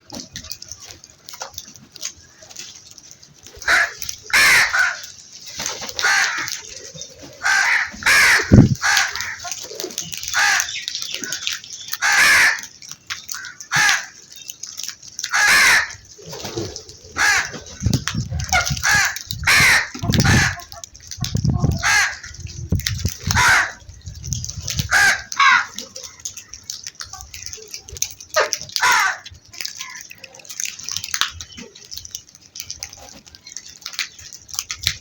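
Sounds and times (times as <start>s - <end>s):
crows cawing: 3.6s - 5.2s, 6.0s - 14.4s, 15.2s - 16.2s, 17.0s - 17.8s, 18.4s - 20.8s, 21.6s - 22.5s, 23.2s - 23.9s, 24.9s - 26.5s, 28.4s - 30.2s.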